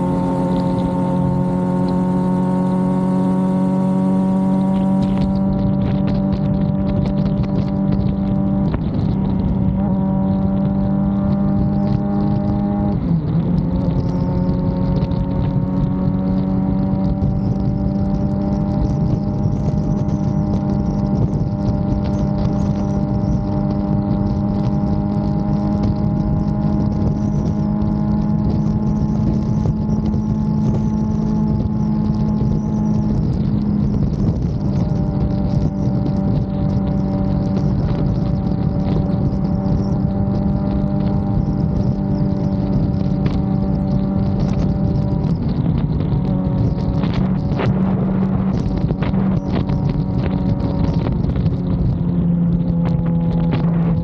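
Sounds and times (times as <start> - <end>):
motorcycle engine pulling: 0.0 - 54.0
wind buffeting microphone: 0.0 - 54.0.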